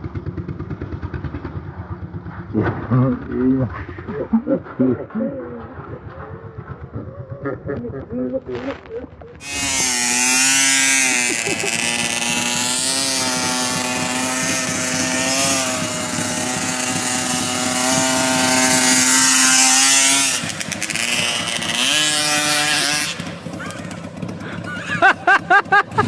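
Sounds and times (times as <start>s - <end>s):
small motorcycle engine revving: 5.3s - 8.0s, 8.6s - 26.0s.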